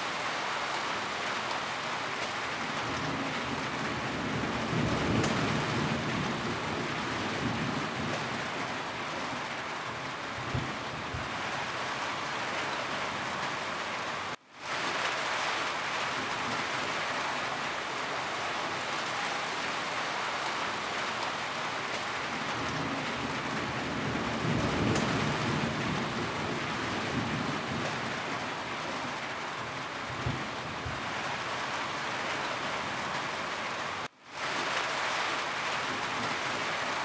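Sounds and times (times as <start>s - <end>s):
rain pattering on a roof: 0.0s - 37.0s
low rumble of thunder: 2.8s - 9.4s, 10.4s - 11.5s, 22.4s - 29.2s, 30.0s - 31.3s.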